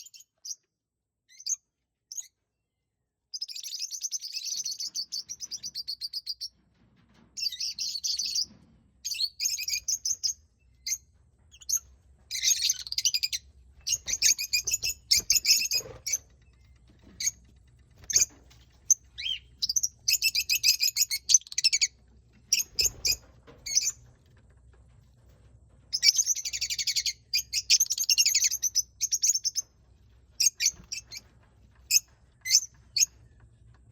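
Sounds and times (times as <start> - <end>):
birds chirping and chattering: 7.4 - 24.1, 25.9 - 33.9.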